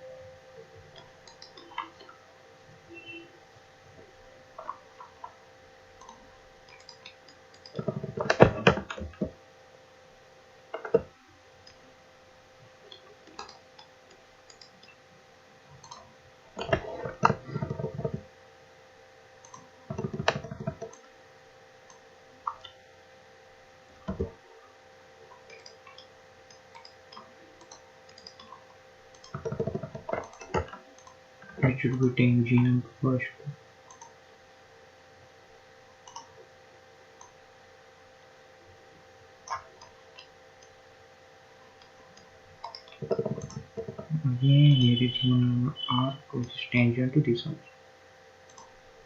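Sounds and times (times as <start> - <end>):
faint electrical hum: 0.0 - 49.0
computer mouse clicks: 0.9 - 2.2, 6.0 - 9.3, 12.9 - 15.0, 15.8 - 18.2, 19.4 - 21.1, 21.9 - 22.8, 25.3 - 31.2, 33.9 - 34.2, 36.0 - 36.4, 37.2 - 37.4, 39.4 - 40.7, 41.8 - 44.1, 48.5 - 48.8
keyboard typing: 0.9 - 2.2, 6.0 - 9.3, 12.9 - 15.0, 15.8 - 18.2, 19.4 - 21.1, 25.3 - 32.7, 33.9 - 34.2, 36.0 - 36.4, 41.8 - 46.6.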